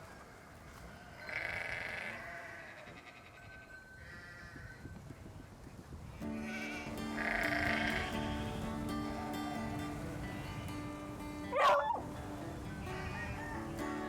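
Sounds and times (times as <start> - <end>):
guitar music: 6.2 - 14.0
dog howling: 11.5 - 12.0.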